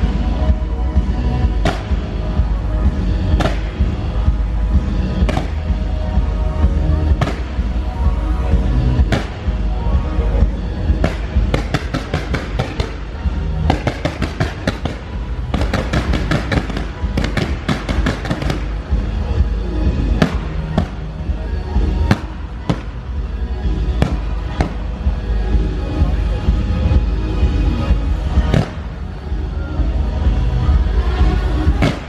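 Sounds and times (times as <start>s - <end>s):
deep steady rumble: 0.0s - 32.0s
show music: 0.0s - 32.0s
fireworks pops and bangs: 1.6s - 2.0s, 3.4s - 3.9s, 5.2s - 5.7s, 7.1s - 7.6s, 9.0s - 9.6s, 11.0s - 13.0s, 13.7s - 18.8s, 31.8s - 32.0s.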